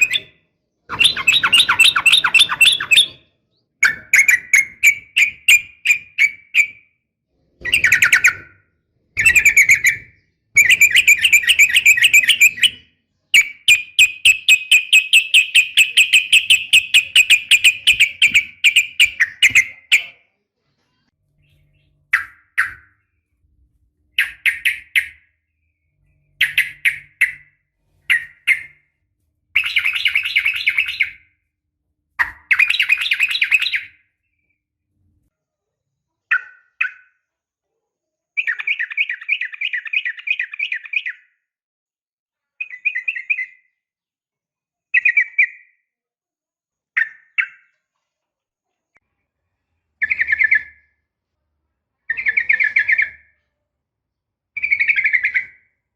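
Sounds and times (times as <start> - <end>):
bird chattering: 0.9 - 3.2, 9.2 - 12.8, 13.4 - 20.2, 24.2 - 25.3, 29.6 - 31.2, 32.2 - 34.0.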